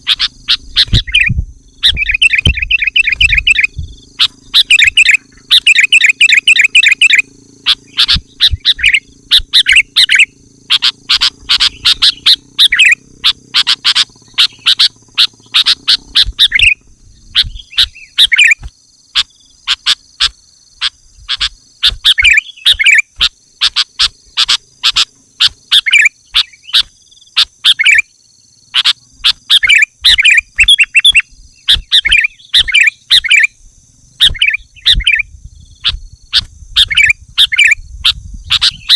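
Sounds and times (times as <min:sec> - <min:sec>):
low hum: 0:00.0 - 0:18.7
bird chattering calls: 0:00.0 - 0:38.9
steady high whine: 0:00.0 - 0:38.9.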